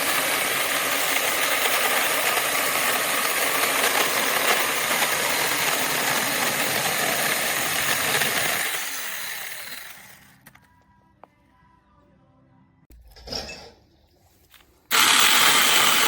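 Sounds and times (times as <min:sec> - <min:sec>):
electric chainsaw buzzing: 0:00.0 - 0:10.4, 0:14.9 - 0:16.0.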